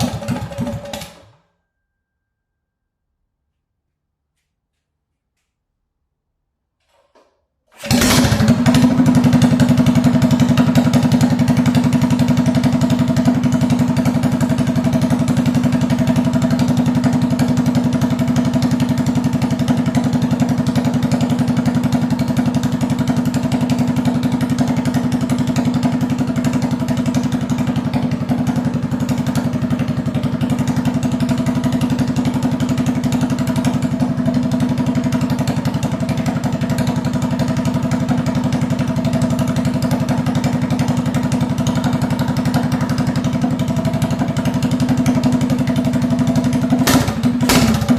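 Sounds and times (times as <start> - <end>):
mini bike engine idling: 0.0 - 1.5, 7.8 - 47.9.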